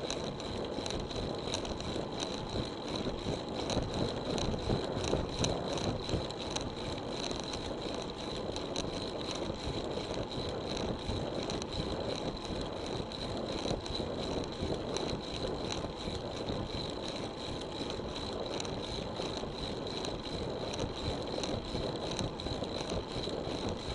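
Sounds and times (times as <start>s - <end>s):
bicycle rolling: 0.0s - 23.9s.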